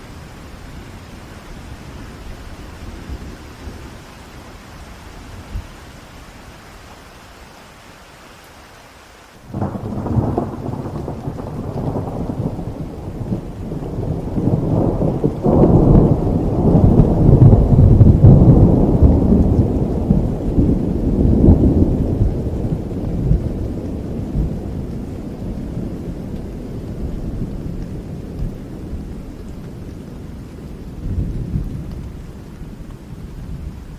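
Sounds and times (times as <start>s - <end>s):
steady rain: 0.0s - 33.9s
thunder rumbling: 9.5s - 33.9s.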